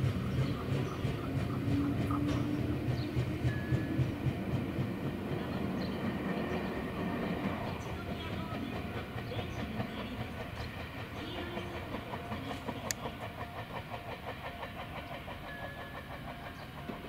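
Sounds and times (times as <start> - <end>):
train wheels clattering over rail joints: 0.0 - 17.0.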